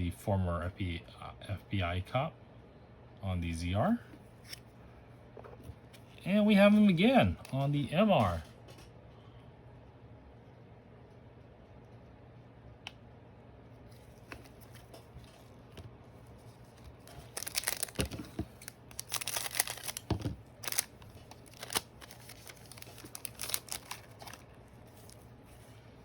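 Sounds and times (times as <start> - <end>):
plastic foil packaging crinkling: 16.4 - 25.3.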